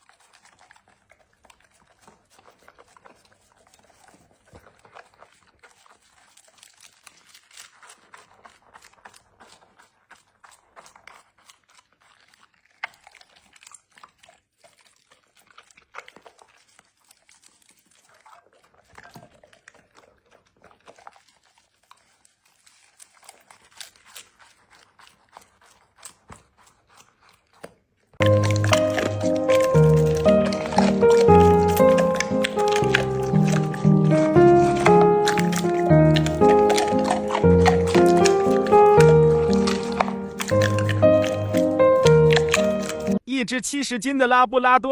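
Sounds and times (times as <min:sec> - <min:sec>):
dog chewing and crunching food: 0:00.0 - 0:43.2.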